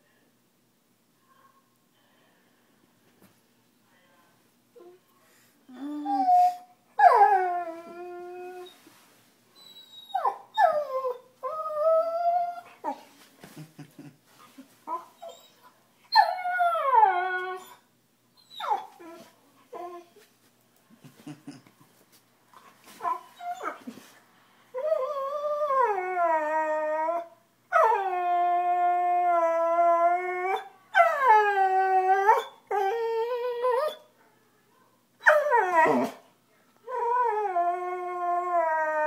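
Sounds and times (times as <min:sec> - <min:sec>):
dog howling and whining: 0:05.7 - 0:08.8, 0:09.6 - 0:12.9, 0:15.2 - 0:17.8, 0:24.8 - 0:34.1, 0:35.2 - 0:36.2, 0:36.9 - 0:39.0.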